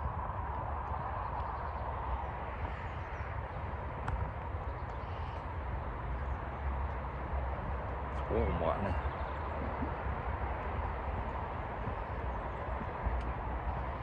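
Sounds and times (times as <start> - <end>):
faint bird calls: 4.6 - 5.5.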